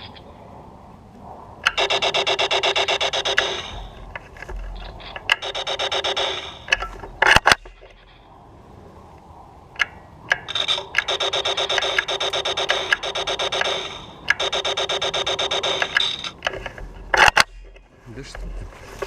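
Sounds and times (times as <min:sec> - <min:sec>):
sharp clicks: 0:01.6 - 0:08.2, 0:09.1 - 0:17.9
laser tag blaster firing: 0:01.7 - 0:04.0, 0:05.3 - 0:07.8, 0:10.5 - 0:16.4.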